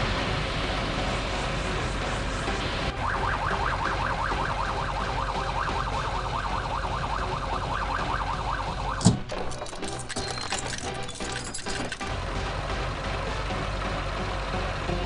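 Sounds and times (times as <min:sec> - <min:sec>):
police siren yelping: 0:02.9 - 0:09.2.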